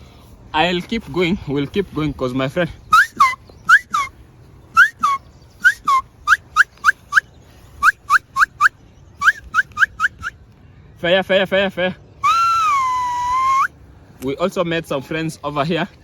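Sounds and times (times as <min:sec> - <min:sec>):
short whistled calls: 0:02.9 - 0:10.4, 0:12.2 - 0:13.8.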